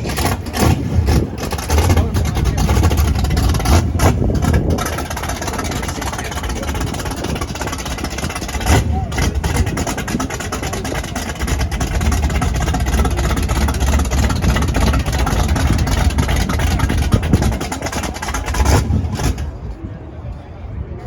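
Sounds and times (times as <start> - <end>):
car engine rumbling and crackling: 0.0 - 21.0.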